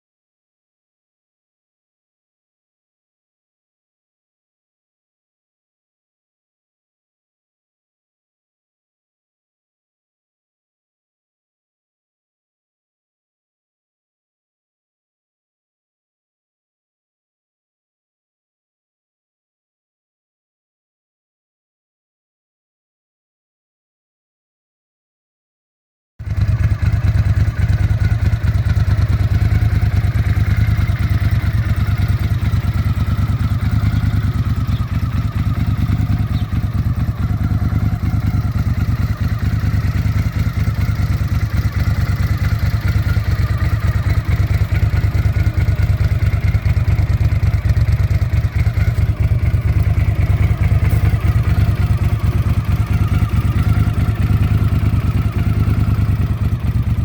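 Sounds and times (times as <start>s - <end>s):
motorcycle engine idling: 26.2s - 57.0s.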